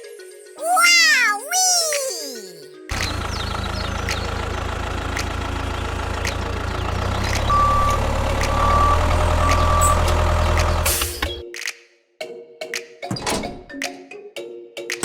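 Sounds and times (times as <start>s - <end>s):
truck engine idling: 3.0s - 10.8s.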